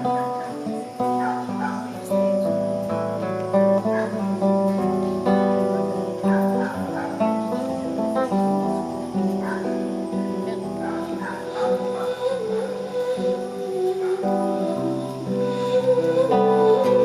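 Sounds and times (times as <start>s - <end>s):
acoustic guitar strumming: 0.0s - 17.0s
long held notes: 6.8s - 17.0s.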